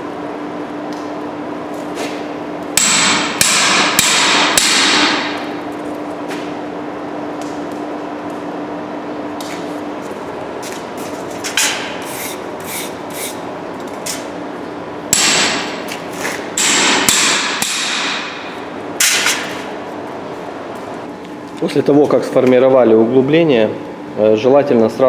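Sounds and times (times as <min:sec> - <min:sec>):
hammer striking steel: 0:02.8 - 0:05.4, 0:15.1 - 0:15.9, 0:16.6 - 0:19.6.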